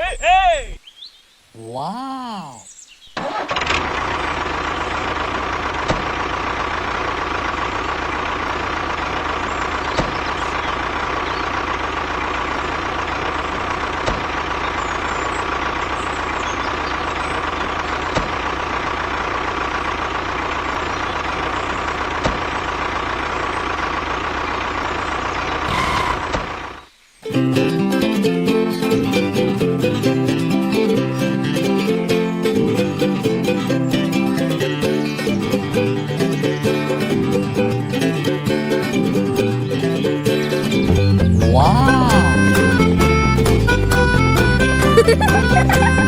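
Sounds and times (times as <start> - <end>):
engine rumbling with whine: 3.5 - 26.8.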